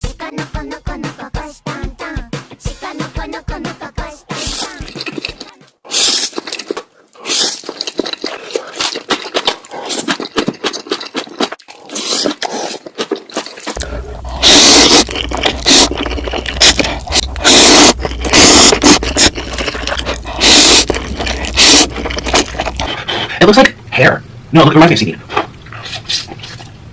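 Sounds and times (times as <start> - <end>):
packaging crinkling and scraping: 4.4 - 23.1
steady low hum: 13.6 - 26.9.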